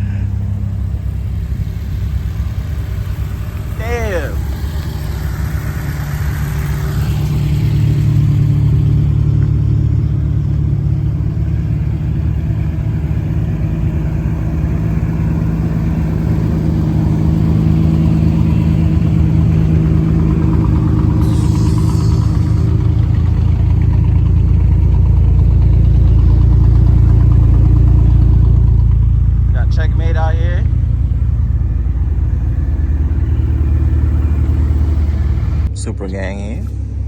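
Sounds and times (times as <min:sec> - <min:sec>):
car engine running at low revs: 0:00.0 - 0:37.0.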